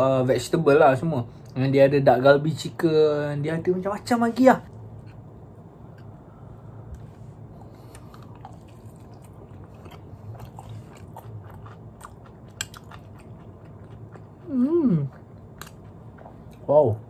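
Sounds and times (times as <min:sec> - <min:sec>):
low steady hum: 0:00.0 - 0:17.0
person chewing: 0:07.4 - 0:16.7.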